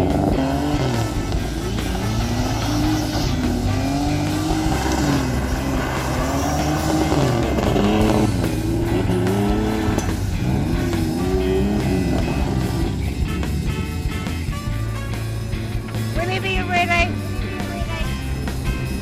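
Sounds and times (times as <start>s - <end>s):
small car engine revving: 0.0s - 16.2s
background music: 0.0s - 19.0s.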